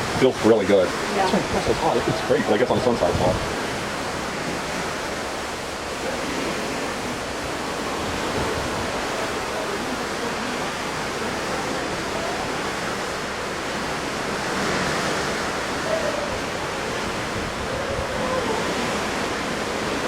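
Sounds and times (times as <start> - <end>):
sea water rushing: 0.0 - 20.0
wind: 0.0 - 20.0.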